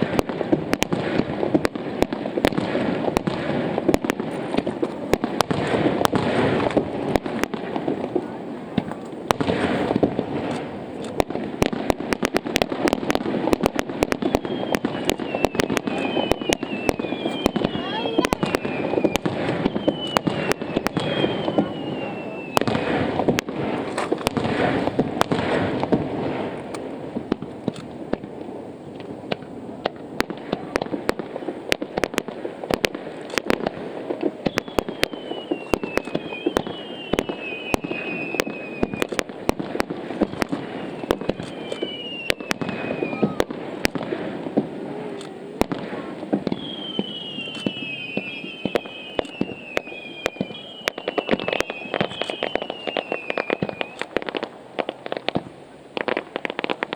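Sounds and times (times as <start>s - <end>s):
fireworks bangs and crackles: 0.0s - 56.9s
whistles falling in pitch: 14.2s - 22.6s, 34.5s - 39.1s, 40.8s - 43.5s, 46.6s - 54.1s.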